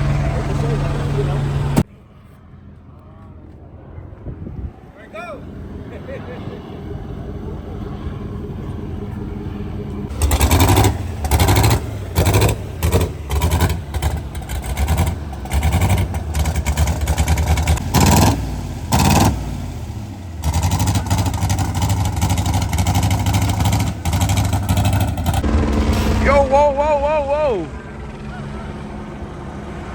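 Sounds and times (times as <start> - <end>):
engine idling and revving: 0.0 - 1.9, 5.4 - 29.9.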